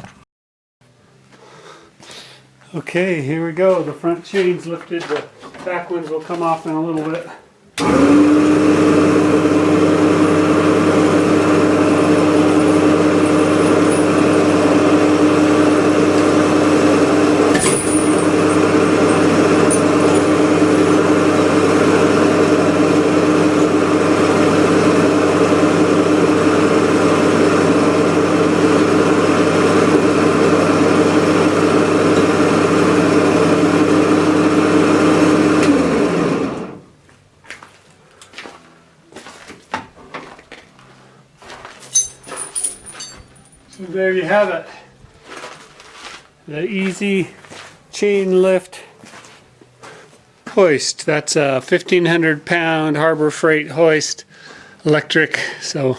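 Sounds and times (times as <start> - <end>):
electric hoist motor humming: 7.8 - 36.9.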